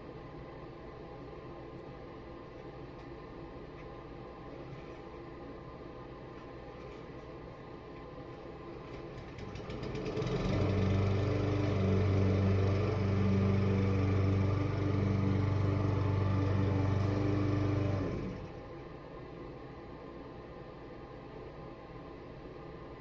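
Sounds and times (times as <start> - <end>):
small gasoline engine running: 9.2 - 18.6.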